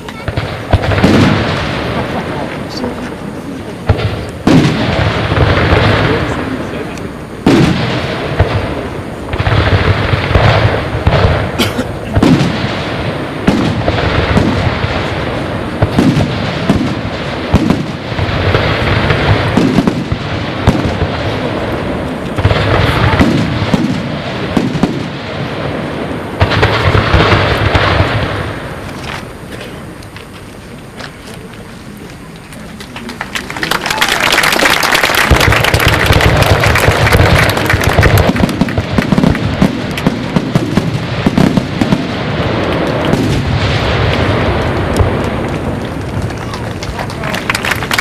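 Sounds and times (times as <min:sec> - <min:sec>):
dense firework crackle: 0:00.0 - 0:48.0
firework bangs: 0:00.0 - 0:48.0.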